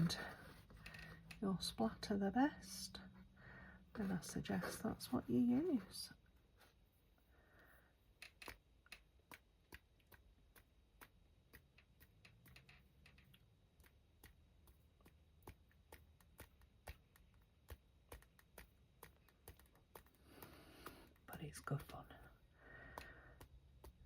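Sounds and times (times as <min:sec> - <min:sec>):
paintbrush tapping: 0:08.1 - 0:24.0.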